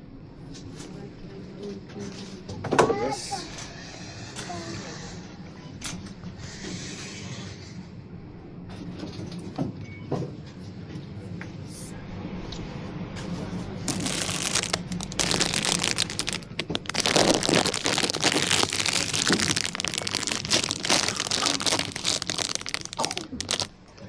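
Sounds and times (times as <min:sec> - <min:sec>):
plastic crinkling and rustling: 0:13.9 - 0:23.7
small clicks and cracks: 0:13.9 - 0:23.7.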